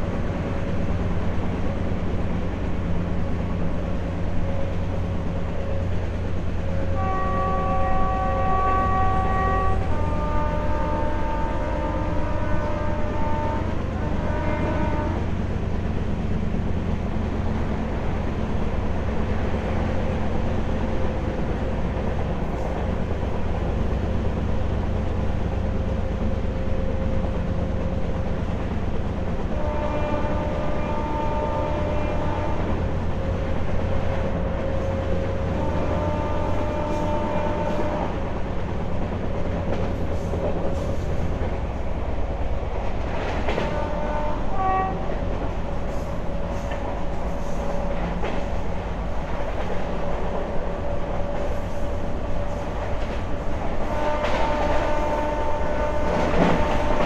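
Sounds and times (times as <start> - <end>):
train wheels rumbling on rails: 0.0 - 57.0
train horn blasts: 6.6 - 15.4, 29.5 - 33.3, 34.5 - 38.3, 42.9 - 48.5, 50.8 - 57.0.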